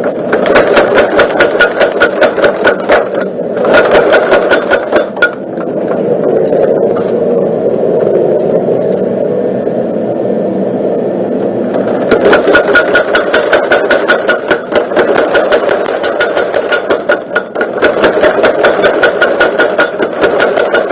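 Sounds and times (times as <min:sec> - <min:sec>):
power hammer striking: 0:00.0 - 0:06.7, 0:11.7 - 0:20.9.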